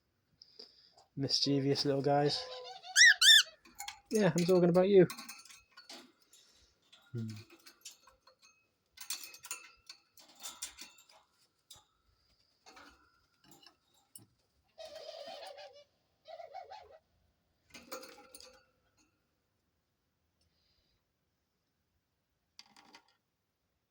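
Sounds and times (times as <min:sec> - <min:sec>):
short wavering bird calls: 0:02.8 - 0:03.5.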